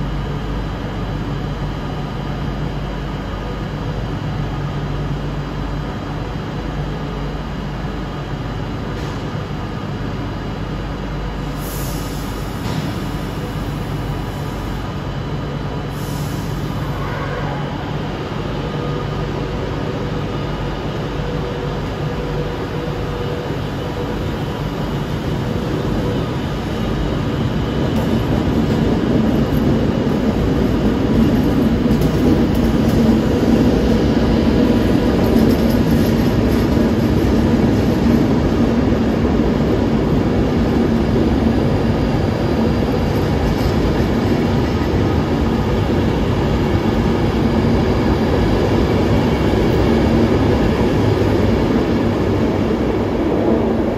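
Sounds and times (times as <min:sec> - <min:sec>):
train rumbling: 0:00.0 - 0:53.9
constant hum: 0:12.3 - 0:53.9.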